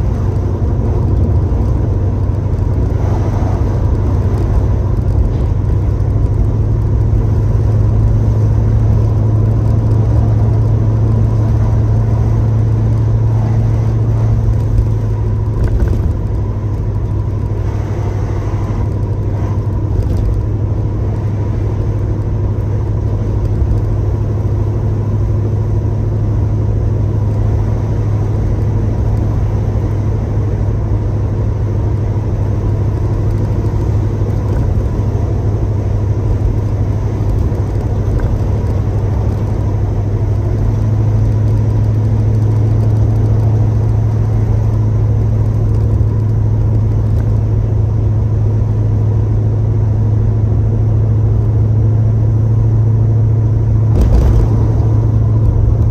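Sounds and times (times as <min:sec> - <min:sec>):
car engine cruising: 0:00.0 - 0:55.9
road noise: 0:00.0 - 0:55.9.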